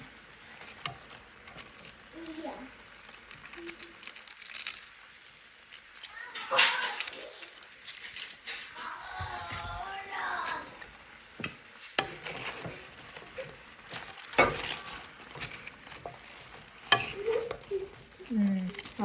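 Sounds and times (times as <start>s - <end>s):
utensil clinking and scraping pan: 0.0s - 2.1s, 10.4s - 19.0s
cabbage sizzling in a frying pan: 0.0s - 19.0s.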